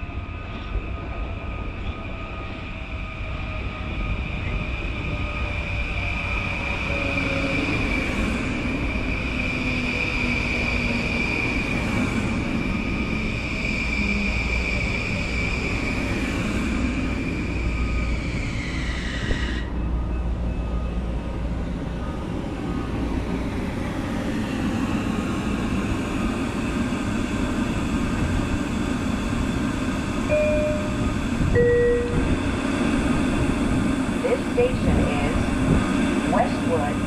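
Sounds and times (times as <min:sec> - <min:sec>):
standing train hum and rumble: 0:00.0 - 0:37.0
two-note chime: 0:30.3 - 0:31.0, 0:31.6 - 0:32.2.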